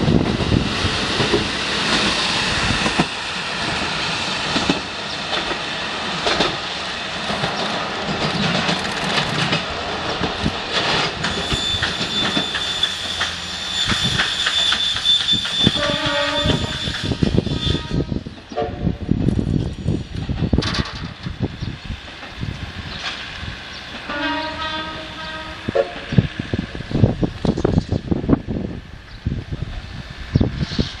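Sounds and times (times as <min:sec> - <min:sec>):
train wheels clattering on track: 0:00.0 - 0:28.4
thin steady squeal: 0:11.3 - 0:18.0.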